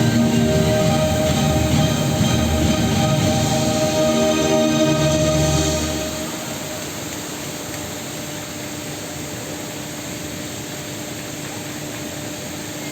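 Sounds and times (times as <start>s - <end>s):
show music: 0.0s - 7.5s
steady rushing noise with hum: 0.0s - 8.8s.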